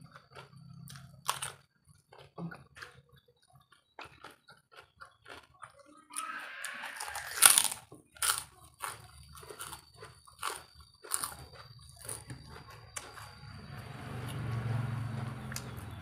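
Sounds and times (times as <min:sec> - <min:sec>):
crunching crunchy food: 0:00.0 - 0:16.0.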